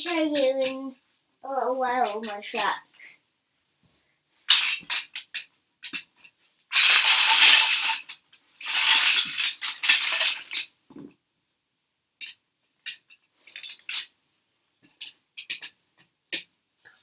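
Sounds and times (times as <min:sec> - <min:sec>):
plastic toy pieces clattering: 0:06.7 - 0:10.7.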